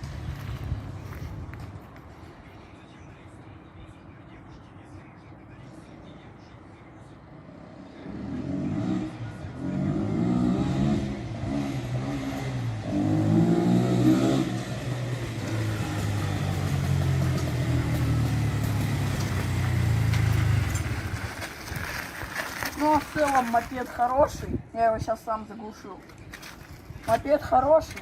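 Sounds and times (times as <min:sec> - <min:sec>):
motorcycle engine revving and idling: 0:07.8 - 0:23.8.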